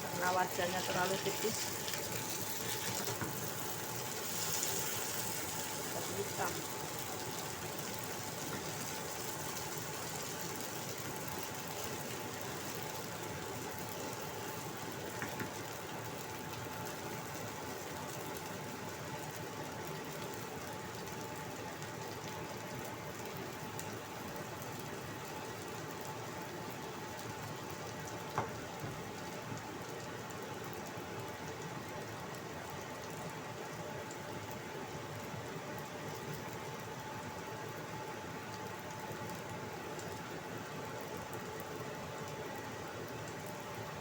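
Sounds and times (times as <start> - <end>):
fritters sizzling in oil: 0.0 - 30.5.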